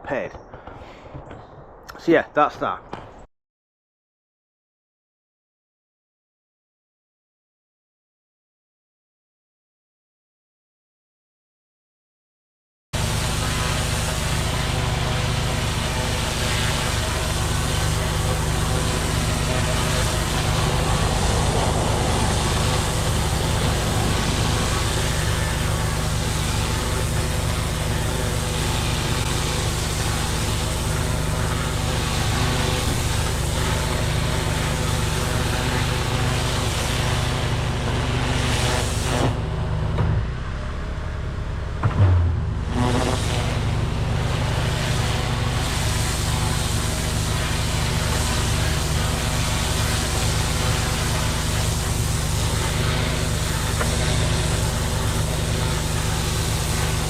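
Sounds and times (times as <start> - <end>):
pressure washer jet hissing: 13.0 - 39.4, 42.6 - 57.0
engine drone: 13.0 - 57.0
thump: 41.8 - 42.6.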